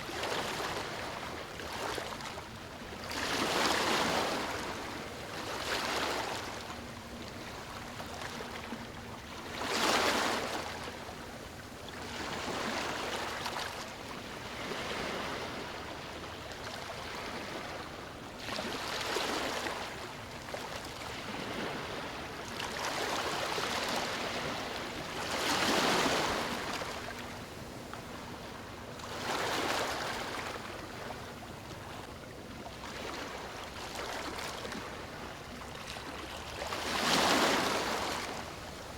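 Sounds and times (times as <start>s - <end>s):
sea waves breaking on beach: 3.1s - 6.9s, 20.9s - 27.3s, 29.1s - 31.1s, 36.0s - 38.9s.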